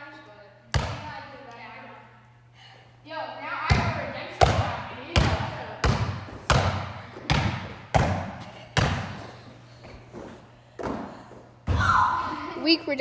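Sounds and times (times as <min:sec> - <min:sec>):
basketball bouncing on hard floor: 0:00.7 - 0:01.2, 0:03.7 - 0:09.3, 0:10.8 - 0:12.0.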